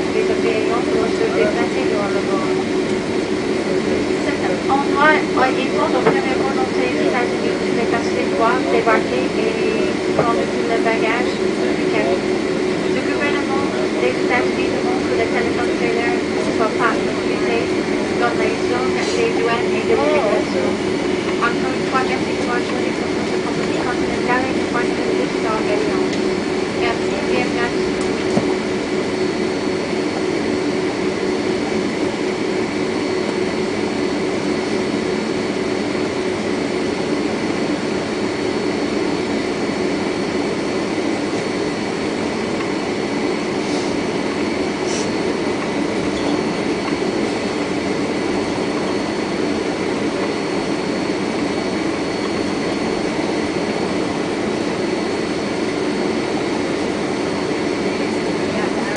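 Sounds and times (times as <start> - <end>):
cabin air-conditioning rush: 0.0 - 58.9
jet engines idling: 0.0 - 58.9.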